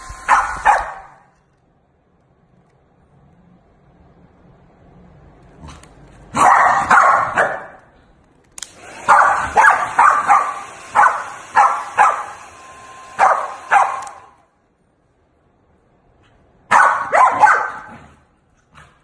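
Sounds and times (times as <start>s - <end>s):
hair dryer airflow hiss: 0.0s - 1.0s, 8.6s - 14.4s
dog barking sharply: 0.3s - 1.3s, 6.3s - 7.9s, 9.0s - 12.4s, 13.2s - 14.4s, 16.7s - 18.1s.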